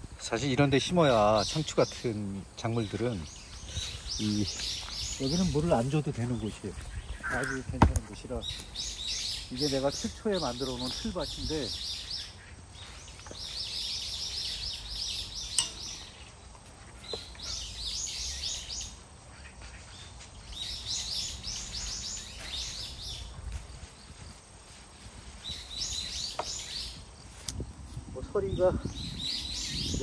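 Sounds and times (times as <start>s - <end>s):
outdoor background noise: 0.0s - 30.0s
songbird singing: 0.0s - 30.0s
sharp click: 15.5s - 16.0s.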